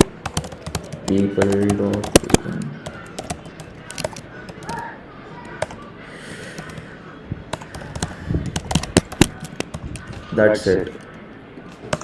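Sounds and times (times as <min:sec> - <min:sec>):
computer keyboard typing: 0:00.0 - 0:11.2.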